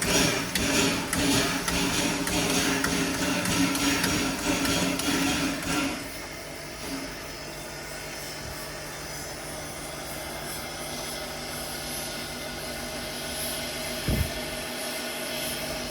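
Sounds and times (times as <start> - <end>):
steam locomotive hissing: 0.0 - 15.9
short low thump: 14.0 - 14.4.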